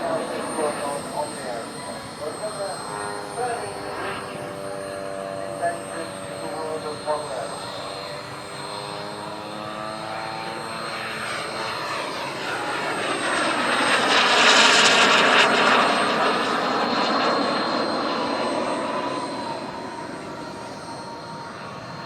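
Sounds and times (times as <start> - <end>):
model jet turbine whine: 0.0 - 22.0.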